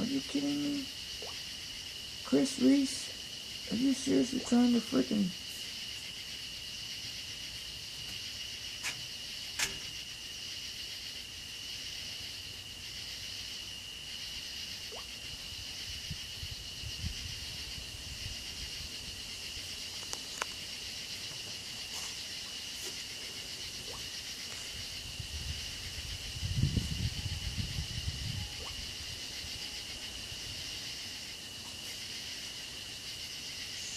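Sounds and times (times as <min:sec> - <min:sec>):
high-pitched insect chorus: 0:00.0 - 0:33.9.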